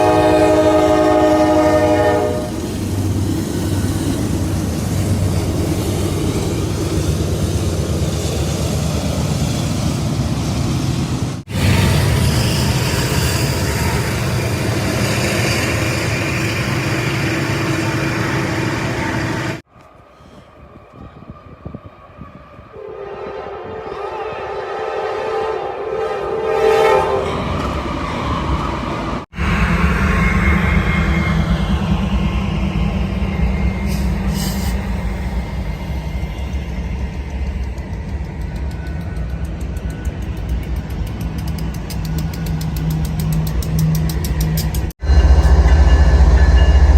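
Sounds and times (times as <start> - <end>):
train rumbling past: 0.0 - 46.9
train hiss: 32.1 - 44.3.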